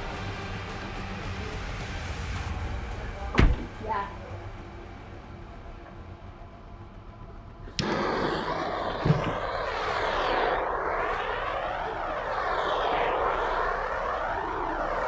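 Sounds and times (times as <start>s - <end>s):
electric air blower rushing: 7.8s - 15.0s.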